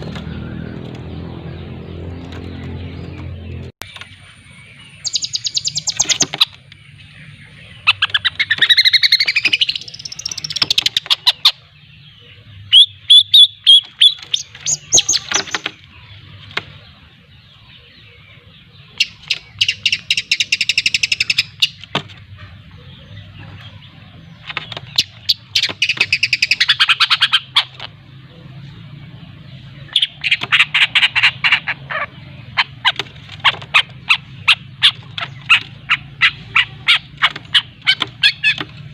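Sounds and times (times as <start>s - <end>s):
bird chattering harsh rattling notes: 7.8s - 11.6s, 13.1s - 16.0s, 24.4s - 27.9s, 29.9s - 38.9s.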